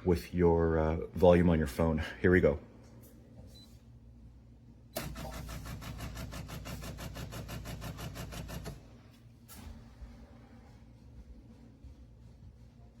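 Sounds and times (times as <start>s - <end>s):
espresso machine pump pulsing: 5.0s - 8.8s.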